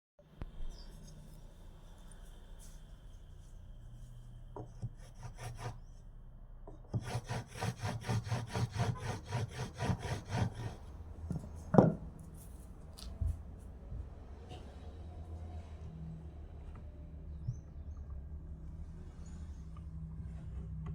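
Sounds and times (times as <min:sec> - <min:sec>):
hand tool stroking wood: 0:04.7 - 0:05.8, 0:06.9 - 0:10.8
knock on wood: 0:11.3 - 0:12.1.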